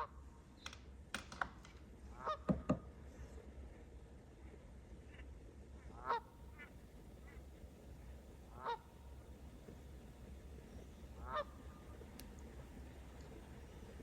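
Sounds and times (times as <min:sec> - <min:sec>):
geese honking: 0:02.2 - 0:02.5, 0:05.9 - 0:14.0.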